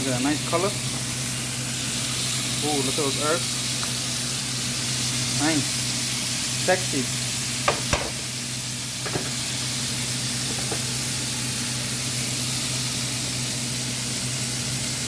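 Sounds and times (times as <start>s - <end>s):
chicken sizzling in oil: 0.0s - 15.0s
oil popping: 7.6s - 9.5s.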